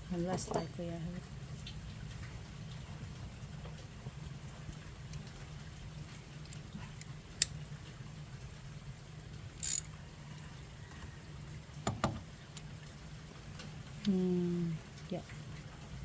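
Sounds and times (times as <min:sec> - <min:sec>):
socket wrench clicks and clinks: 0:09.6 - 0:09.9.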